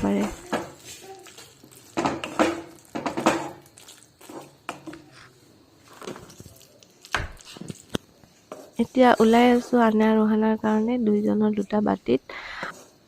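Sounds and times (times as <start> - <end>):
spoon scraping and knocking in a pan: 0.1 - 6.4, 7.4 - 9.8
squishy noodle sounds: 0.2 - 3.0, 3.6 - 8.0.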